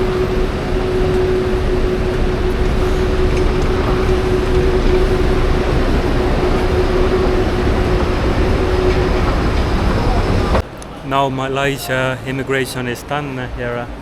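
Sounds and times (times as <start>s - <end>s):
vehicle engine deep rumble: 0.0s - 10.6s
constant humming tone: 0.0s - 11.1s.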